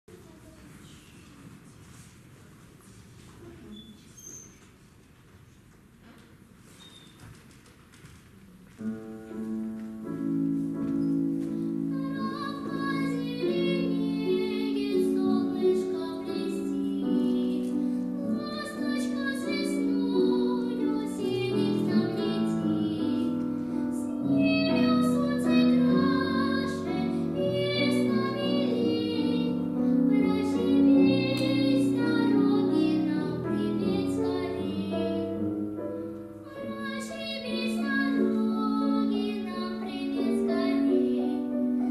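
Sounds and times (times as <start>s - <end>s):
girl singing: 11.6s - 41.9s.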